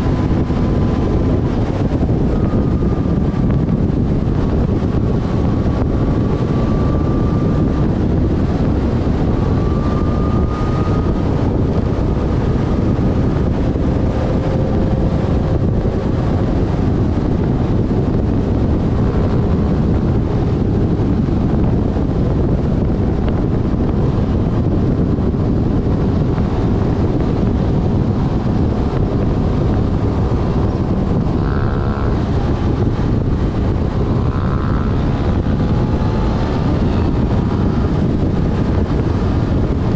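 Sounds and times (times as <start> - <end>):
faint engine whine: 0.0 - 39.9
motorcycle engine running: 0.0 - 39.9
wind rushing over microphone: 0.0 - 39.9.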